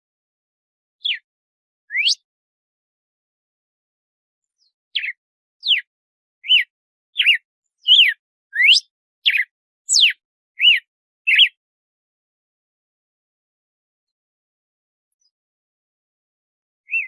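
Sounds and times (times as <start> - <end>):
bird whistling song: 1.0 - 1.3, 1.9 - 2.3, 4.5 - 11.6.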